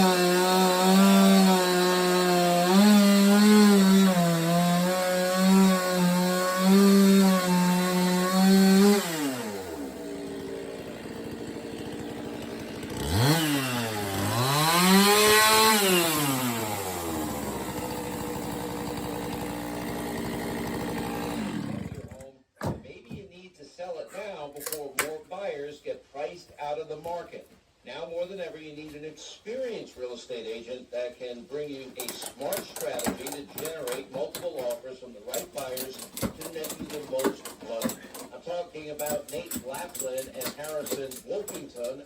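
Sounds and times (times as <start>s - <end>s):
chainsaw cutting wood: 0.0s - 22.3s, 32.0s - 38.4s, 39.0s - 42.0s.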